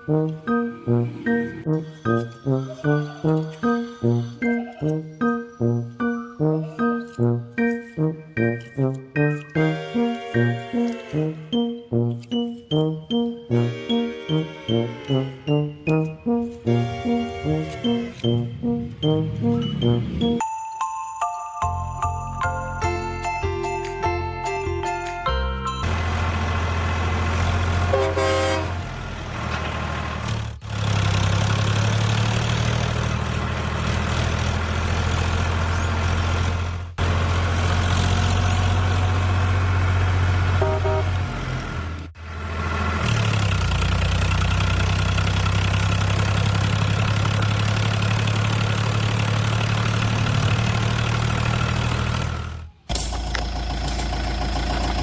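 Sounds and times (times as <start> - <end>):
horn toots: 0.0 - 20.4, 27.7 - 29.0, 40.6 - 41.4
small engine running: 29.9 - 55.0.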